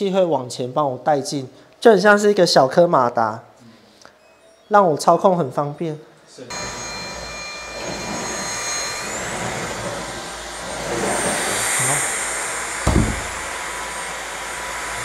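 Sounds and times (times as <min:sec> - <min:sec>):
stick vacuum running: 0:06.5 - 0:13.8
knock: 0:12.8 - 0:13.5.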